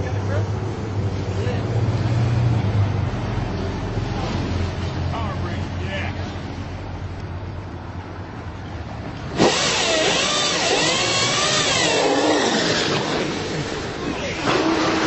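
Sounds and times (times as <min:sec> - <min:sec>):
electric motorcycle humming: 0:09.3 - 0:15.0
electric motorcycle accelerating with squeals: 0:09.4 - 0:15.0.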